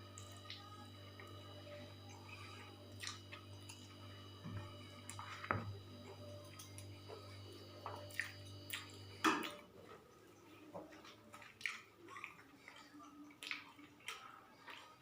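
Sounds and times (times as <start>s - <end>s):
low steady hum: 0.0s - 15.0s
soft chewing: 0.0s - 15.0s
small clicks and wet smacks: 0.1s - 1.3s, 2.9s - 4.0s, 6.1s - 15.0s.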